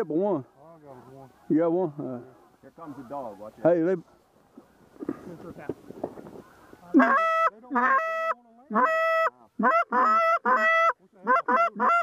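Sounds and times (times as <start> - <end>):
goose honking: 6.4 - 12.0.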